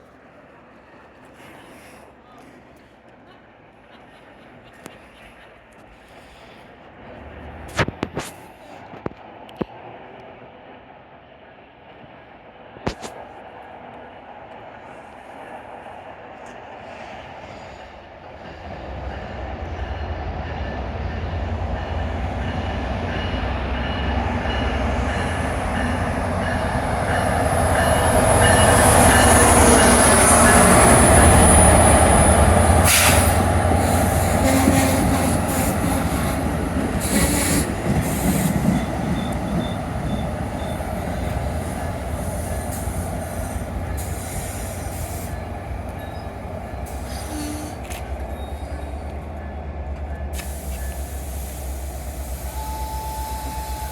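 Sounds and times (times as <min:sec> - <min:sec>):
train rumbling past: 0:00.0 - 0:53.9
high wheel squeal: 0:42.3 - 0:49.1.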